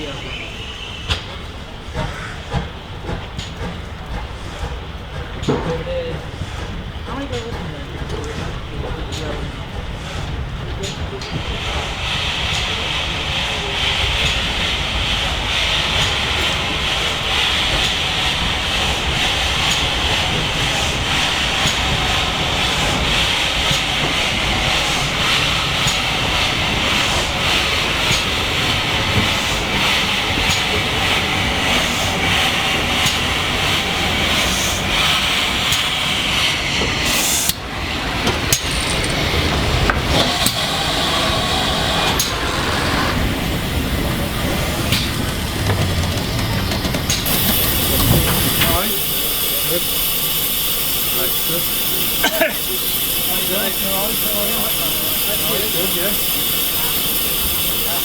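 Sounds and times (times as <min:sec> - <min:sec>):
steam locomotive hissing steam: 0:00.0 - 0:58.0.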